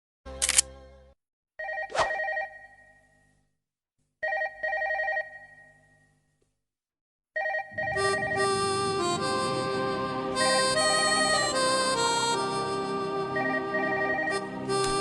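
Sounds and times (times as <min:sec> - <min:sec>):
telephone ringing: 0:01.6 - 0:03.2, 0:04.2 - 0:06.1, 0:07.4 - 0:08.4, 0:13.4 - 0:14.5.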